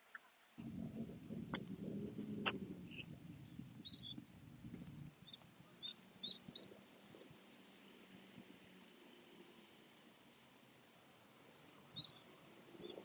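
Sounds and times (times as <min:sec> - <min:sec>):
songbird chirping: 0:02.4 - 0:04.3, 0:05.1 - 0:13.0.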